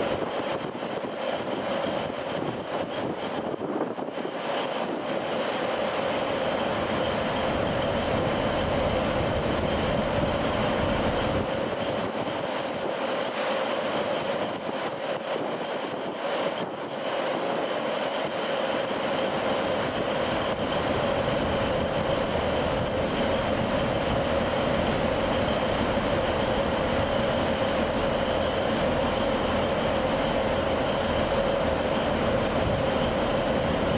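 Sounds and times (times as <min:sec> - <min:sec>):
steady hum: 0:05.2 - 0:12.0, 0:18.9 - 0:33.9.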